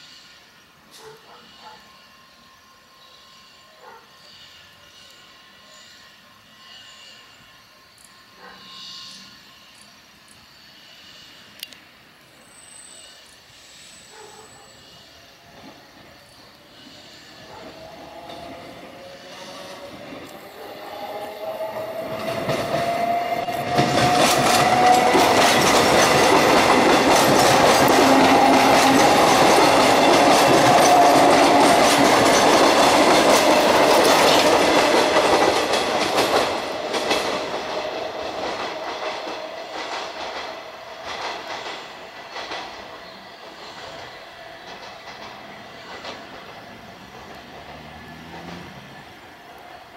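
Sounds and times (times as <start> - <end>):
electric train whine: 0.0 - 49.9
wheels clattering over rail joints: 23.6 - 42.9.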